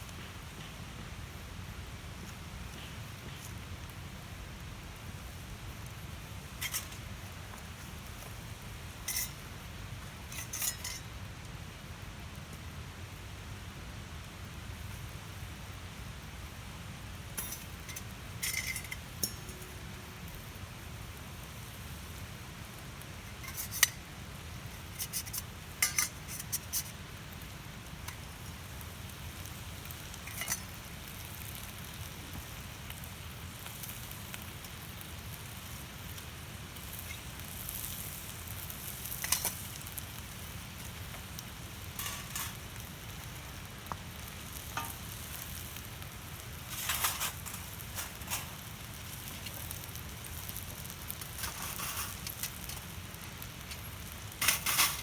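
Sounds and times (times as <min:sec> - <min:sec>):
food sizzling on griddle: 0:00.0 - 0:55.0
utensil scraping metal: 0:09.1 - 0:09.5, 0:17.4 - 0:19.8, 0:23.3 - 0:24.0.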